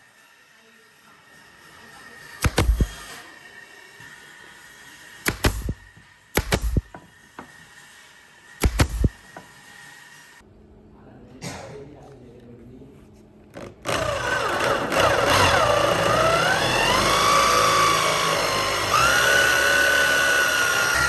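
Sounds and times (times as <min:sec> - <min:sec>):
sharp knocks: 0:02.4 - 0:03.0, 0:05.3 - 0:07.1, 0:08.6 - 0:09.2.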